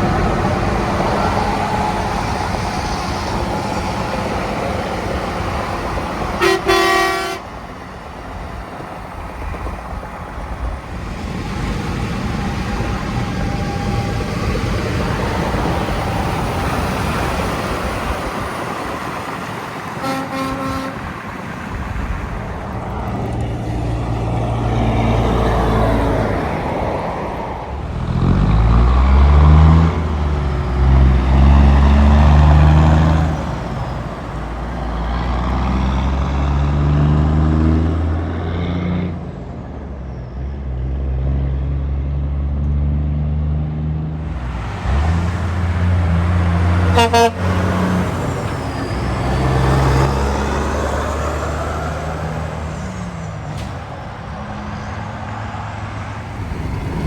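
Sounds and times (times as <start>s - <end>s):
heavy truck engines accelerating: 0.0s - 57.0s
truck horn toot: 6.4s - 7.6s, 20.0s - 21.3s, 46.2s - 48.0s.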